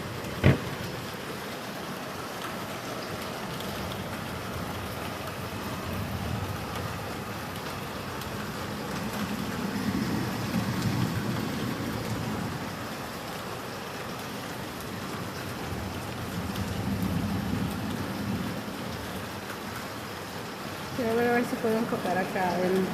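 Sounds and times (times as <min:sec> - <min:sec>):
heavy rain falling: 0:00.0 - 0:22.9.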